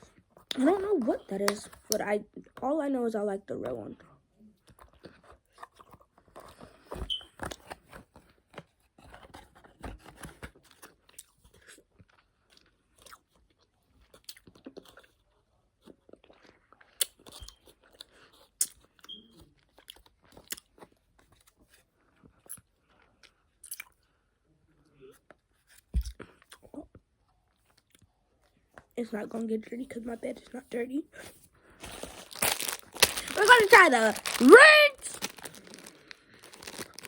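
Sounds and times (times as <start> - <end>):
person chewing gummy candy: 4.6 - 6.8, 10.8 - 24.2, 26.0 - 27.0, 31.8 - 37.0.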